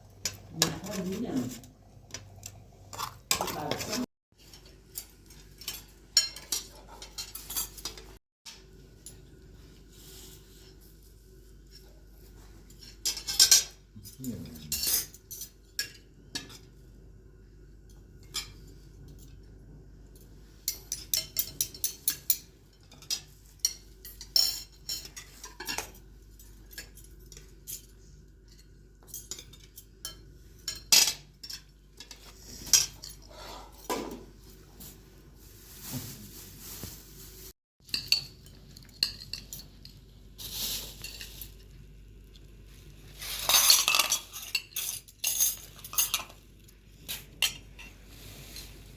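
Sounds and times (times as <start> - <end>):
cutlery and dishes clinking: 0.2 - 9.4, 12.7 - 16.8, 20.1 - 34.5, 37.8 - 40.0, 43.2 - 48.0.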